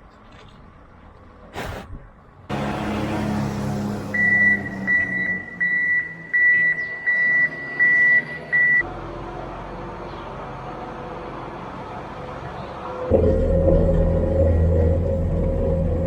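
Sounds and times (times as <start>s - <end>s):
vehicle backup alarm beeping: 4.1s - 8.9s
low engine hum: 8.5s - 16.0s.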